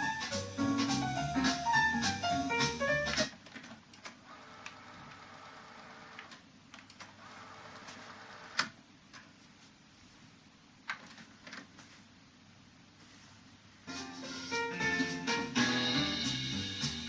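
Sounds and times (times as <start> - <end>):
piano jazz: 0.0 - 3.3, 13.9 - 17.0
tape deck clicks: 3.0 - 4.8
tape deck whirring: 3.0 - 8.8.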